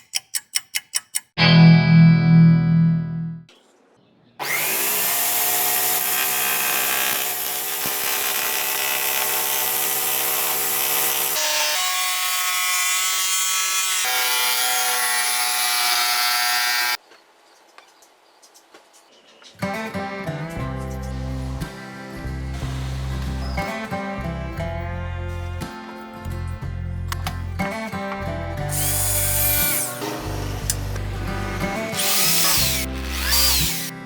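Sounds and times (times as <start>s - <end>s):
electric drill motor hum: 4.4s - 13.2s, 28.7s - 34.0s.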